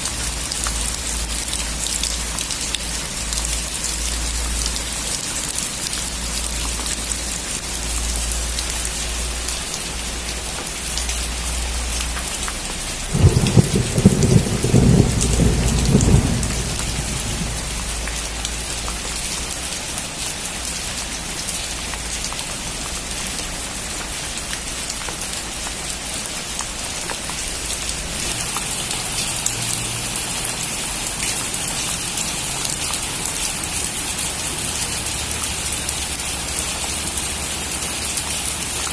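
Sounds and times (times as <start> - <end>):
heavy rain falling: 0.0 - 38.9
thunder rumbling: 13.0 - 18.5.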